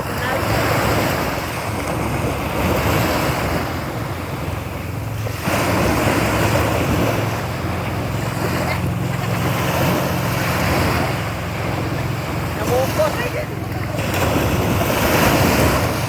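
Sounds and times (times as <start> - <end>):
boat engine humming: 0.0 - 16.0
waves washing: 0.0 - 16.0
wind buffeting microphone: 0.0 - 16.0.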